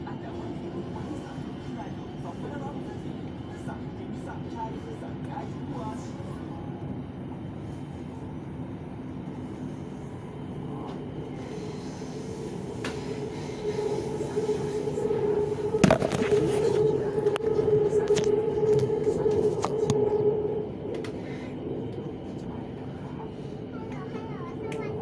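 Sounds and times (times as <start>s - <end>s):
train carriage rumbling: 0.0s - 25.0s
humming tone: 13.2s - 21.1s.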